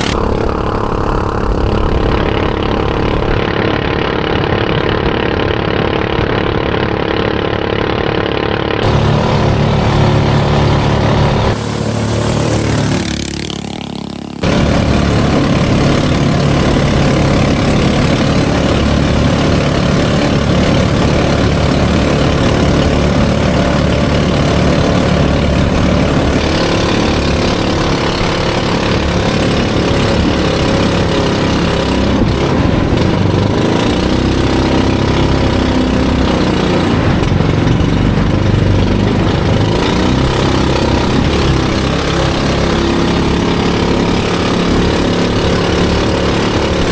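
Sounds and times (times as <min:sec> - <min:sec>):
boat engine droning: 0:00.0 - 0:46.9
rushing hiss: 0:11.1 - 0:13.1.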